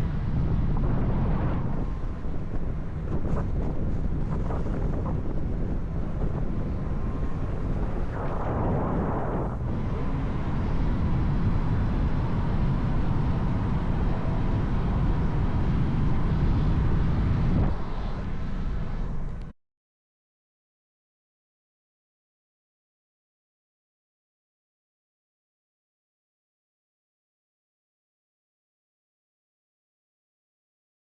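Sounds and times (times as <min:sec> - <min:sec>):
wind and road noise: 0:00.0 - 0:19.5.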